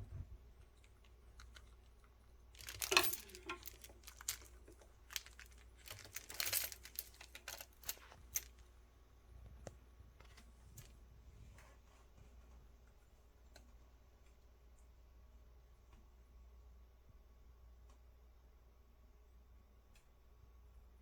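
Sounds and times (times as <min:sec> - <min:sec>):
crinkling rustling: 0:00.5 - 0:08.7.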